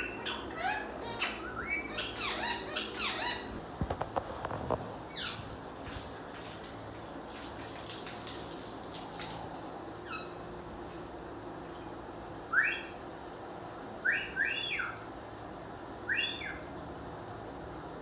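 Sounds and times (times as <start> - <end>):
parrots squawking: 0.0 - 3.6.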